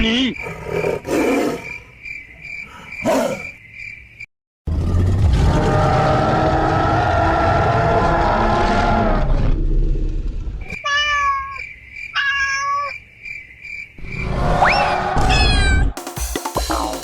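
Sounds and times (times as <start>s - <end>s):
falling meow-like calls: 10.7s - 11.6s, 12.2s - 13.0s, 15.2s - 16.0s
dense cartoon sound effect: 14.0s - 16.0s.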